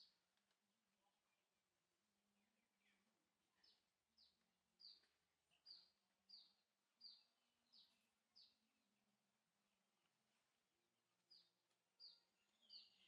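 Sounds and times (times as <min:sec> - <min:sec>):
bird chirping: 0:02.5 - 0:08.7, 0:11.2 - 0:13.0.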